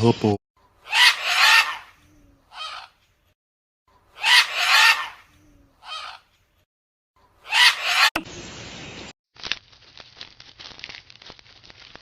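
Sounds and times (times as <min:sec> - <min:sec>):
harsh animal call: 0:00.8 - 0:03.0, 0:04.2 - 0:06.3, 0:07.4 - 0:08.2.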